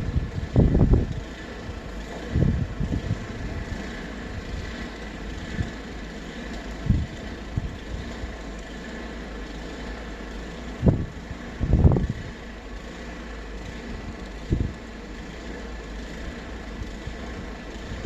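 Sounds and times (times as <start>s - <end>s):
wind gusts buffeting microphone: 0.0s - 5.8s, 6.8s - 8.4s, 10.7s - 12.4s, 13.7s - 14.8s
wind low rumble: 0.0s - 15.1s.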